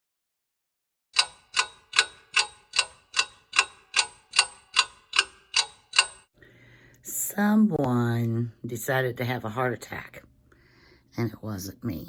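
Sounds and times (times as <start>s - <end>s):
clock-like ticking: 1.2s - 6.3s.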